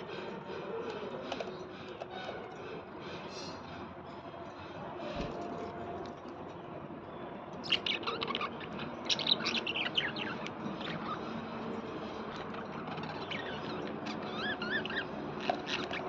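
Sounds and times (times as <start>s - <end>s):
small birds chirping: 6.6s - 16.0s.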